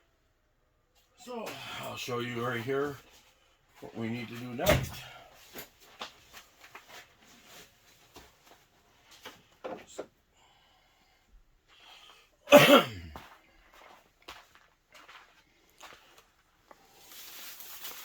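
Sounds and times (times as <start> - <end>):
man coughing: 12.5 - 13.2.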